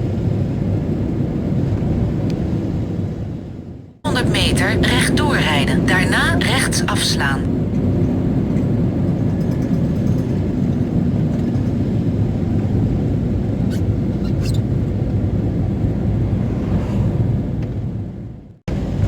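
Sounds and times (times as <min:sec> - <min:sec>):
van engine and road rumble: 0:07.5 - 0:19.0.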